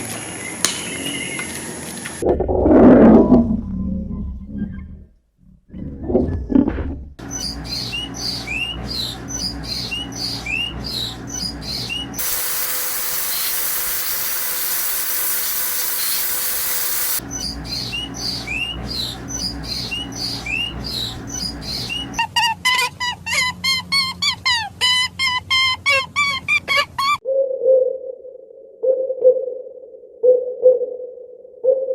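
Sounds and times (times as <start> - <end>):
loud pitched bird calls: 7.2 - 22.2
small birds chirping: 7.2 - 22.2
steady hiss: 12.2 - 17.2.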